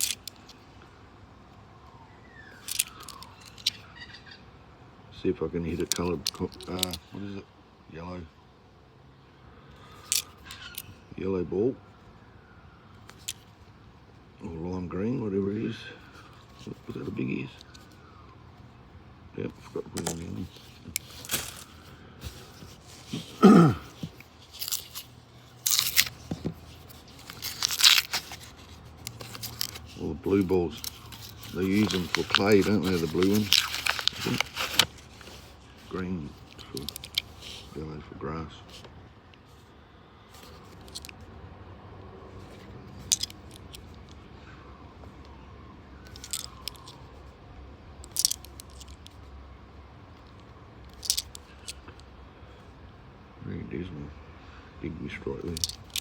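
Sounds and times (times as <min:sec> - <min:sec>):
coins and paper wrapper handled: 0:00.0 - 0:00.6, 0:02.6 - 0:03.8, 0:05.7 - 0:07.1, 0:09.9 - 0:10.9, 0:19.6 - 0:37.8, 0:40.4 - 0:41.2, 0:42.4 - 0:44.2, 0:46.0 - 0:47.1, 0:48.0 - 0:49.2, 0:50.2 - 0:52.0, 0:55.3 - 0:56.0
coins clinking: 0:27.1 - 0:34.9.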